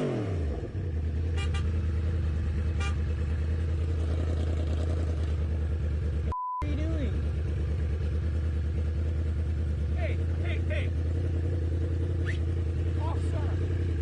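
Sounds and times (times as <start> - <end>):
low engine-like hum: 0.3 - 14.0
single-pitch bleep: 6.3 - 6.7.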